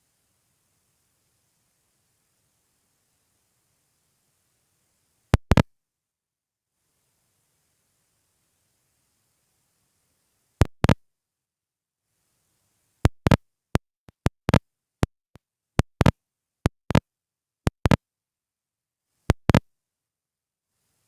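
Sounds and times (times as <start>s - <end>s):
sharp clicks: 5.4s - 5.6s, 10.6s - 11.0s, 14.1s - 14.6s, 15.8s - 16.1s, 16.7s - 17.0s, 17.7s - 18.0s, 19.3s - 19.6s.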